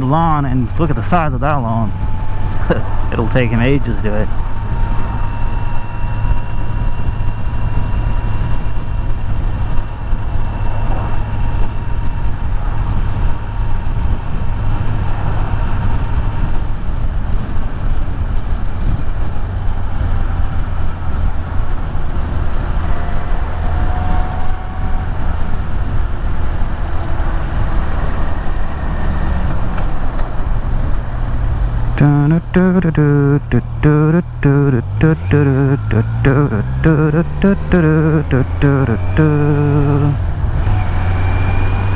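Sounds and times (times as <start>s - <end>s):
motorcycle engine cruising: 0.0s - 41.9s
wind rumble on microphone: 0.6s - 32.0s.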